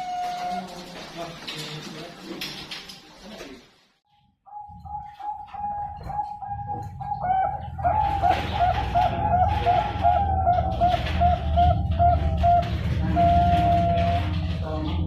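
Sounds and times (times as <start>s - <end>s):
dove cooing: 4.5s - 15.0s.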